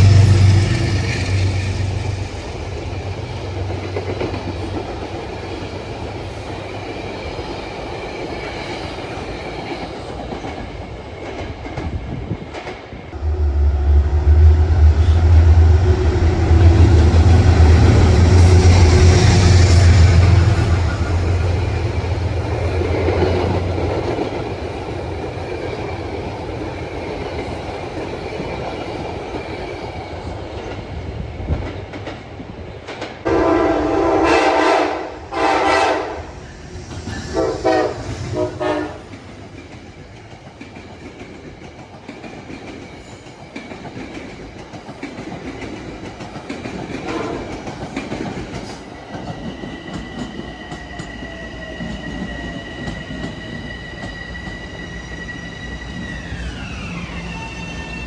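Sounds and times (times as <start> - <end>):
train rumbling on rails: 0.0 - 58.0
train horn blasts: 13.2 - 21.8, 33.2 - 36.4, 37.3 - 39.2, 47.0 - 47.6
wheels squealing on rails: 35.4 - 41.2, 45.4 - 58.0.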